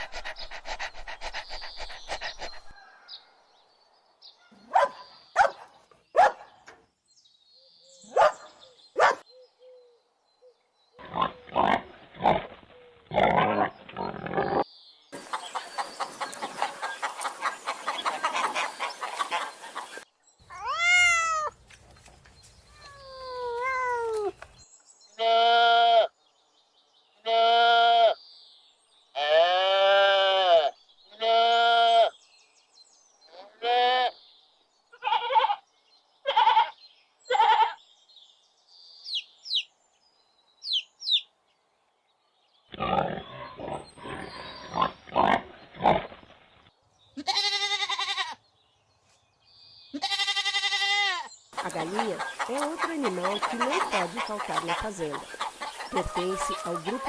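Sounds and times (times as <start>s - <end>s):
other animal calls: 15.2s - 21.6s, 22.7s - 24.4s, 50.0s - 57.0s
goats bleating: 47.2s - 48.4s, 50.0s - 57.0s.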